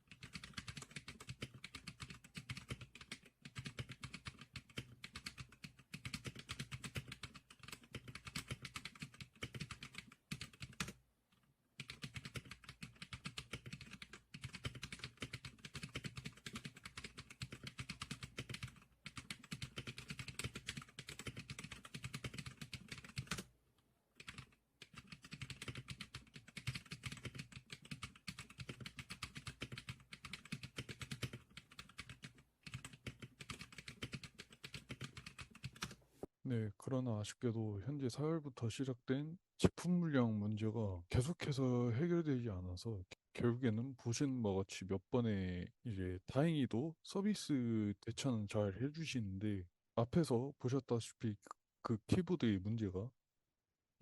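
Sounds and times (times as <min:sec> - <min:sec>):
rapid keyboard typing: 0:00.0 - 0:11.0, 0:11.8 - 0:23.5, 0:24.2 - 0:36.0.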